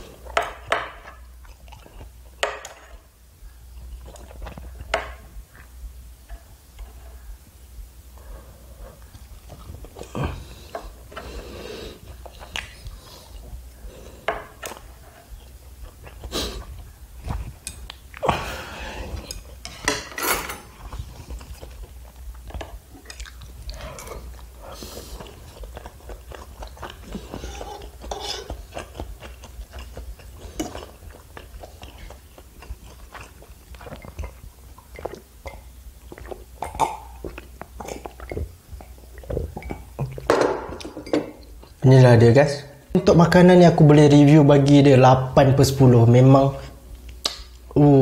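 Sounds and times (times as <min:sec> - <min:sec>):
chewing: 0:00.0 - 0:07.4, 0:08.2 - 0:20.0, 0:20.6 - 0:41.8
utensils clinking against a pan: 0:19.8 - 0:20.7.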